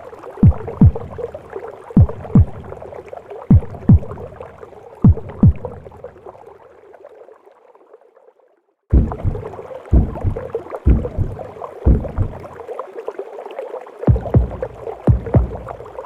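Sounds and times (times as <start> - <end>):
heartbeat thumps: 0.4 - 1.3, 2.0 - 2.8, 3.5 - 4.3, 5.0 - 5.8, 8.9 - 12.5, 14.1 - 16.0.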